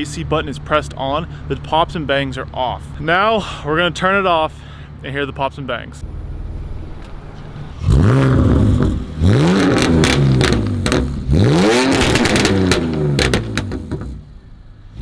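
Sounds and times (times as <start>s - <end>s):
exhaust pops and bangs: 6.0s - 14.4s
car engine revving: 6.0s - 15.0s.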